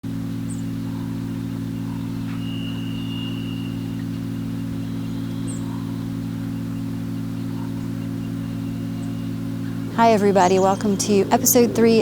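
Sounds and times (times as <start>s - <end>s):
steady low hum: 0.0s - 12.0s
faint chirp: 0.5s - 12.0s
faint high whistle-like tone: 1.8s - 6.0s.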